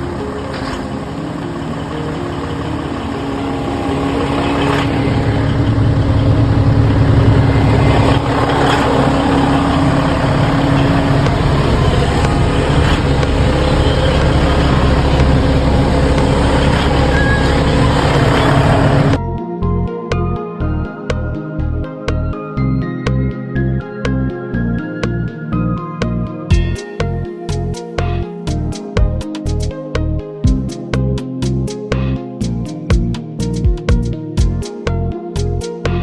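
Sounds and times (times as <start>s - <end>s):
motor humming: 0.0s - 19.2s.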